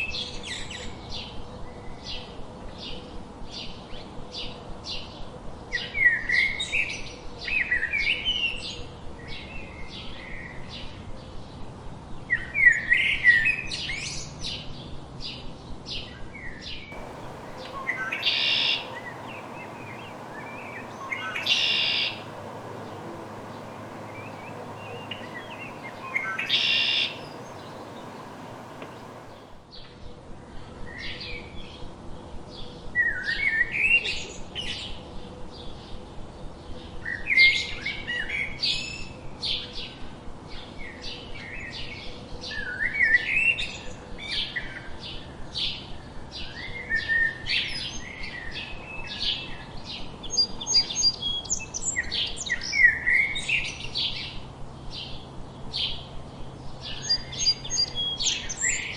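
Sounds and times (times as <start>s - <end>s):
songbirds chirping and singing: 17.0s - 29.5s.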